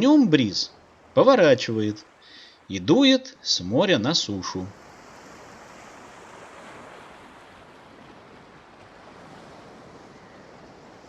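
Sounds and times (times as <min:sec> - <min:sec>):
sea surf hissing: 0:00.0 - 0:07.0.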